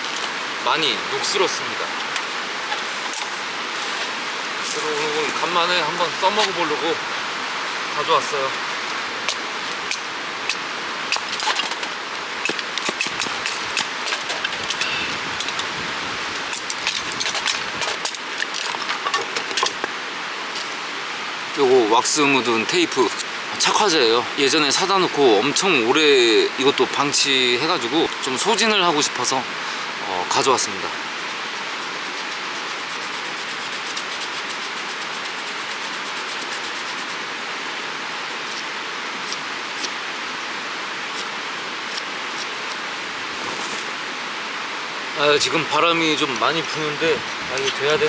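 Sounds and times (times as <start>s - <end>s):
flowing creek: 0.0s - 48.0s
wind: 0.0s - 48.0s
camping gear clicking and knocking: 9.3s - 15.7s, 16.5s - 20.0s.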